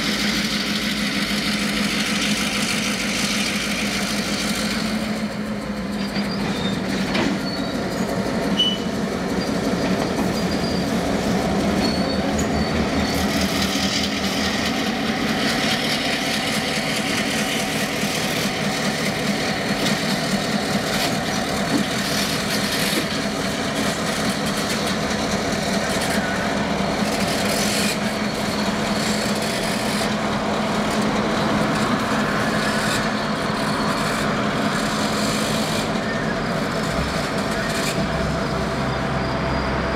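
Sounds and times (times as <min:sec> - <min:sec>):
diesel locomotive engines running: 0:00.0 - 0:39.9
rail and wheel noise: 0:00.0 - 0:39.9.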